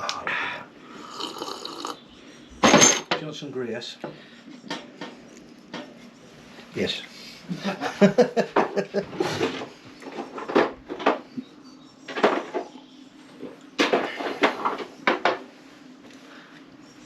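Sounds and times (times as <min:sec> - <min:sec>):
tools clattering on workbench: 0:02.6 - 0:03.3.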